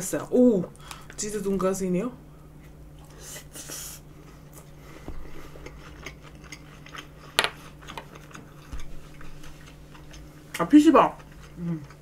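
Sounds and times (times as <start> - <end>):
chewing: 4.5 - 12.0.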